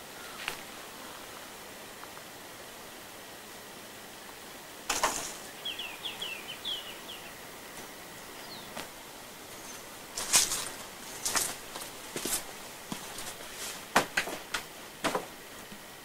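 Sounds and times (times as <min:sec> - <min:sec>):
faint steady hiss: 0:00.0 - 0:16.0
bird chirping: 0:05.4 - 0:07.4, 0:08.4 - 0:08.8.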